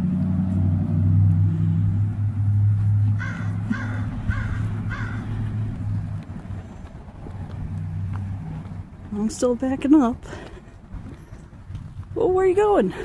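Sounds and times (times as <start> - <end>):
low steady rumble: 0.0 - 13.0
crow cawing: 3.2 - 5.6.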